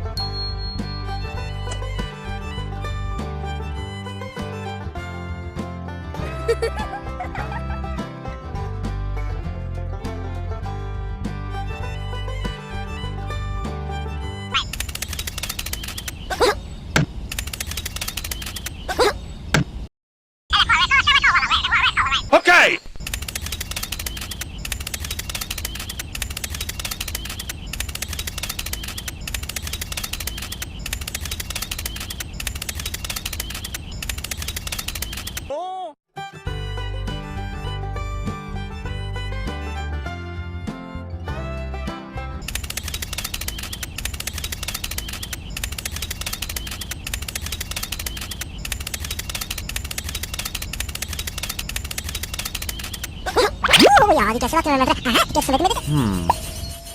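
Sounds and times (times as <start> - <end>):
small motor rattling clicks: 14.6 - 16.2, 17.3 - 18.8, 23.0 - 35.5, 42.4 - 53.2.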